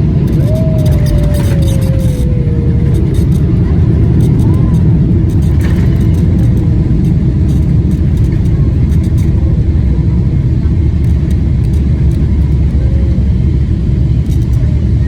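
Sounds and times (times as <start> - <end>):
rolling wheels: 0.0 - 9.6
airliner engines rumbling: 0.0 - 15.0.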